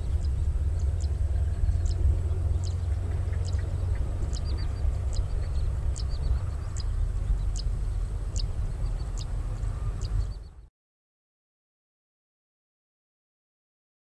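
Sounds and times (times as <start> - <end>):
distant train rumble: 0.0 - 10.7.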